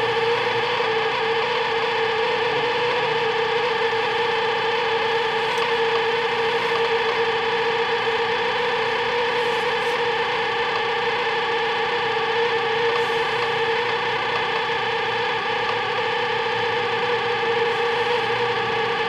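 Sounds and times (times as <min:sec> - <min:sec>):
microwave oven humming: 0:00.0 - 0:19.0.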